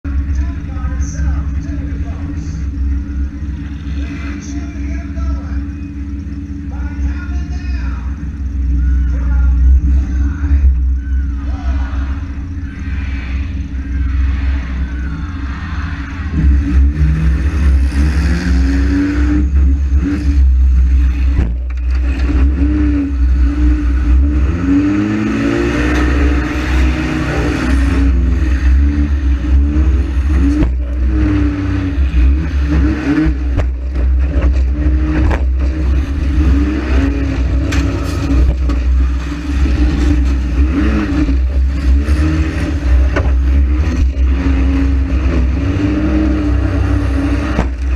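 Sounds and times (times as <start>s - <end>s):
heavy low rumble: 0.0s - 47.9s
car engine revving hard: 11.9s - 47.9s
cars colliding with bangs: 30.2s - 45.6s, 46.5s - 47.9s.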